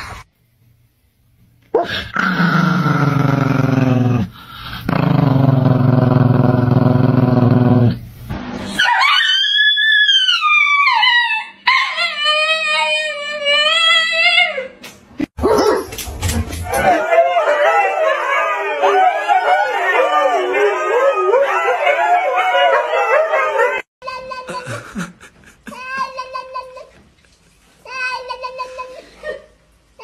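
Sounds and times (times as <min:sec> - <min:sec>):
small dog howling: 0:08.8 - 0:14.6, 0:16.7 - 0:23.9
dog howling with wavering pitch: 0:16.7 - 0:23.9
man howling: 0:16.8 - 0:23.8.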